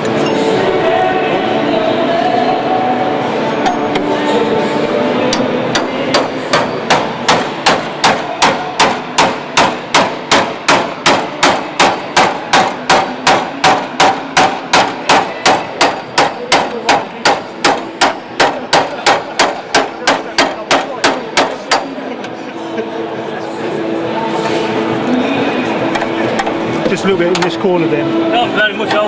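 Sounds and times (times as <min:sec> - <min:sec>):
hammer striking chisel on steel: 0:05.3 - 0:22.0.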